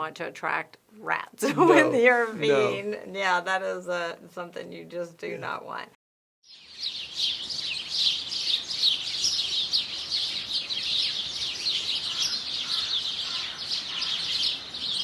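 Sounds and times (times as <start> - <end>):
birds chirping: 6.5 - 15.0.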